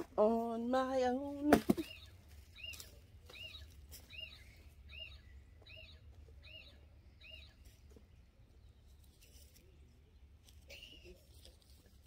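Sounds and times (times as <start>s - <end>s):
small bird chirping faintly: 1.8s - 11.2s.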